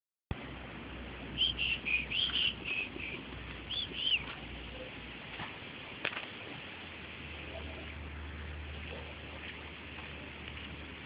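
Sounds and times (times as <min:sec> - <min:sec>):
bird chirping: 0:01.4 - 0:04.9.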